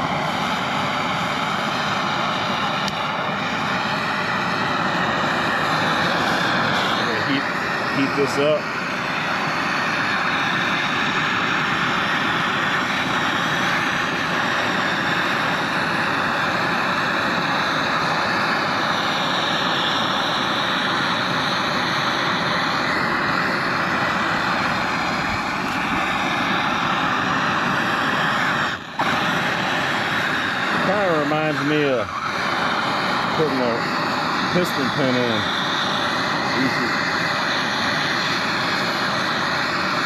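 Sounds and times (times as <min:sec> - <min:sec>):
gas torch flame hissing: 0:00.0 - 0:40.0.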